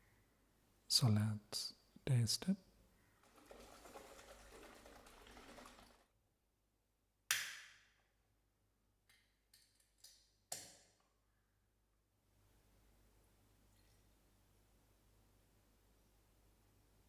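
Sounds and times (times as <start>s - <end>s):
rustling of drink can: 3.2s - 6.1s
can pull-tab cracking open: 7.3s - 7.7s.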